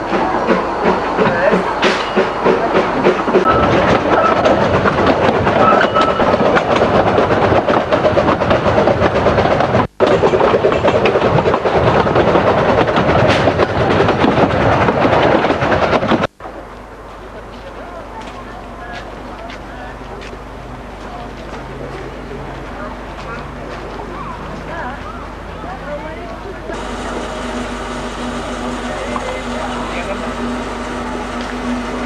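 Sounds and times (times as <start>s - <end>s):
train wheels clattering on track: 0.0s - 16.3s, 25.8s - 32.0s.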